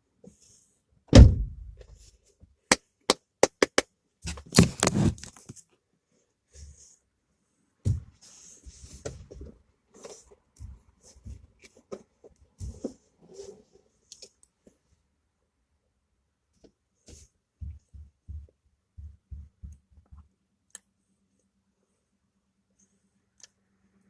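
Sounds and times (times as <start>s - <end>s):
heavy thump: 1.1s - 1.9s
soft taps and rustles: 7.8s - 14.8s, 16.6s - 20.3s.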